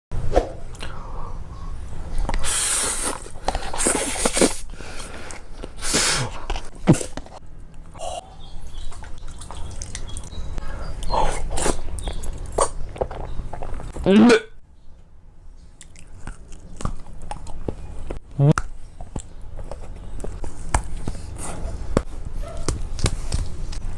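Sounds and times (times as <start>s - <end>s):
person eating close up: 2.3s - 14.4s, 15.7s - 21.9s.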